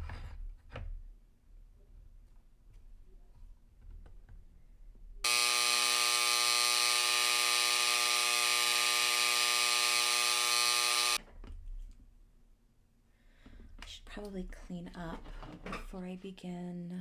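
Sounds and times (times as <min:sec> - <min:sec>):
electric engraver buzzing: 0:05.2 - 0:11.2.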